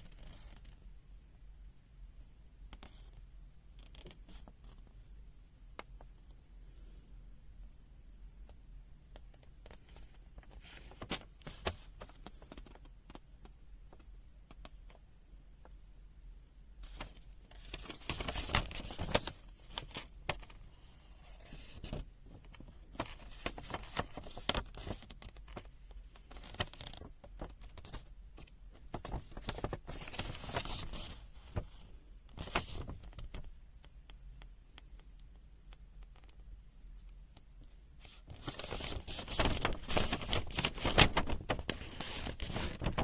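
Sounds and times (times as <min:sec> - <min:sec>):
rustling and scraping handling noise: 0:16.8 - 0:28.1, 0:37.4 - 0:43.0.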